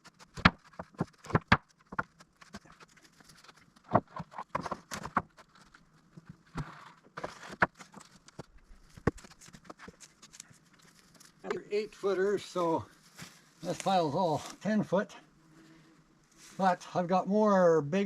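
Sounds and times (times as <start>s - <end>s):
wooden boards knocking and clattering: 0.2s - 2.7s, 3.8s - 5.4s.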